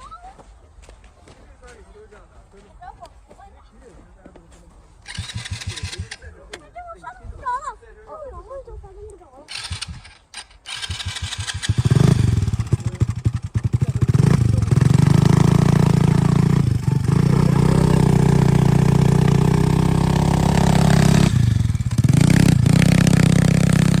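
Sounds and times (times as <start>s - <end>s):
dirt bike engine running: 5.0s - 6.4s, 9.5s - 24.0s.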